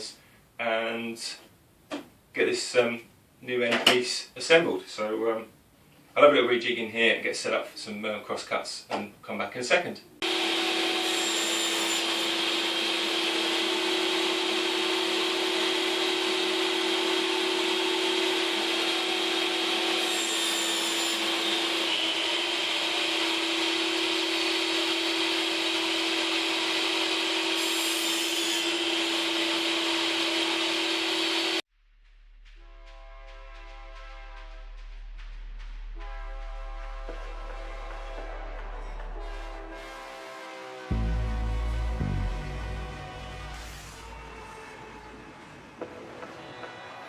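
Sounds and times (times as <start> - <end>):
power saw cutting plywood: 10.2 - 31.6.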